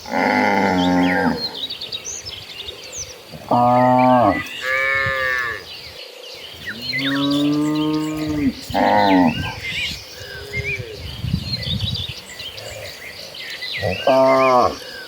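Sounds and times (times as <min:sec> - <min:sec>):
cows mooing: 0:00.0 - 0:01.7, 0:03.4 - 0:05.7, 0:06.7 - 0:09.6, 0:13.8 - 0:14.8.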